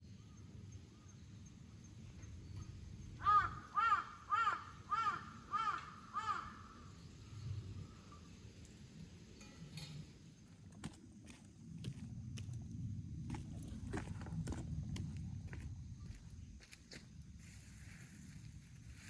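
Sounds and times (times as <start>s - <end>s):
crow cawing: 3.2s - 6.9s.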